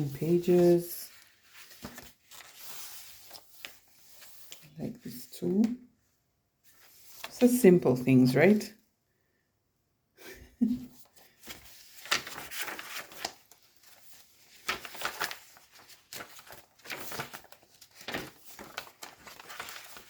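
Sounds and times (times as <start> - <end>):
paper pages rustling: 0.0 - 5.3, 6.6 - 7.6, 10.9 - 20.0.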